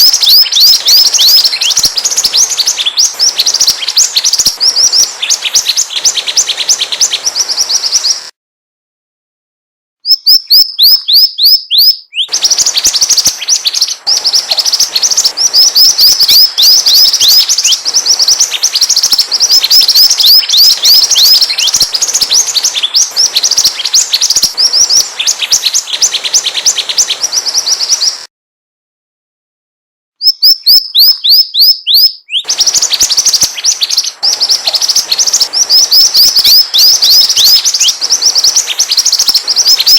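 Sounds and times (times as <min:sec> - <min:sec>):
rapid high bird chirps: 0:00.0 - 0:08.4, 0:10.0 - 0:28.3, 0:30.2 - 0:39.9.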